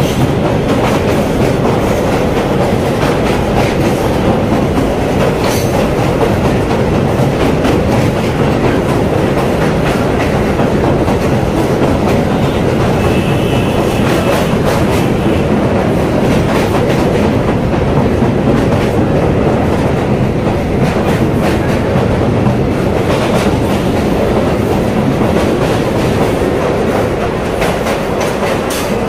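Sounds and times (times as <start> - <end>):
clacks at rail joints: 0.0 - 29.0
train wheels rumbling on rails: 0.0 - 29.0.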